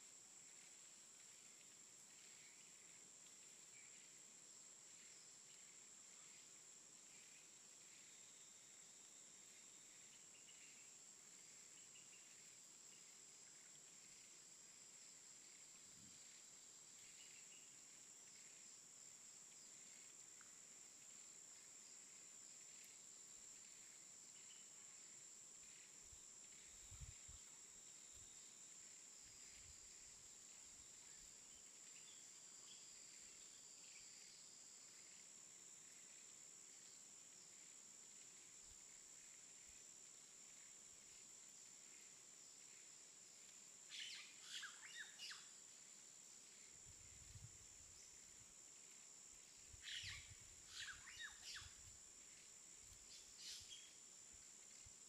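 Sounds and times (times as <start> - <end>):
faint steady hiss: 0.0 - 55.0
small bird chirps: 43.9 - 45.5, 49.8 - 51.8, 53.1 - 54.0.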